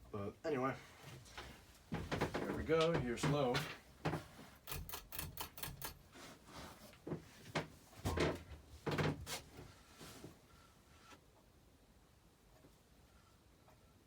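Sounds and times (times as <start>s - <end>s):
knocks and clunks: 1.9s - 4.3s, 7.1s - 9.3s.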